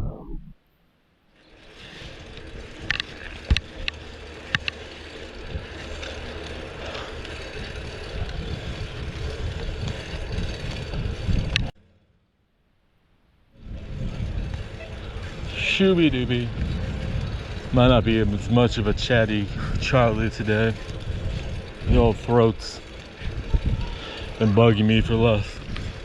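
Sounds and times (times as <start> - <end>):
low rumble: 0.0 - 0.6, 13.6 - 24.5
road and wind noise: 1.4 - 12.0, 13.5 - 26.0.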